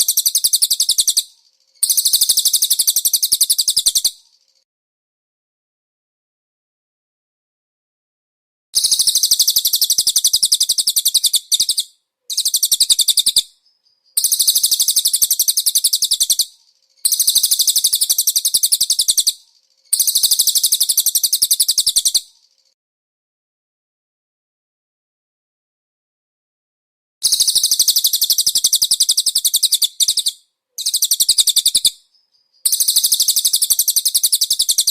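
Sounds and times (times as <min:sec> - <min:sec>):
songbird trills: 0:00.0 - 0:04.6, 0:08.8 - 0:22.8, 0:27.2 - 0:34.9.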